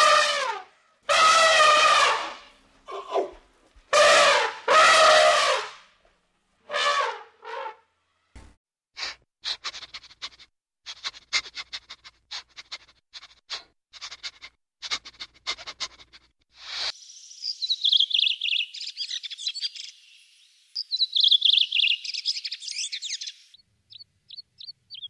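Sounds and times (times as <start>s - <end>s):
elephant trumpeting: 0.0s - 5.8s.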